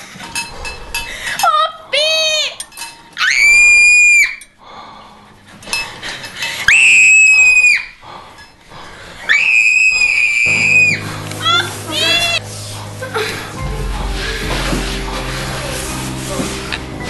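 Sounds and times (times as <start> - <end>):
shrill high-pitched screaming: 3.2 - 4.5, 6.7 - 8.0, 9.2 - 12.4.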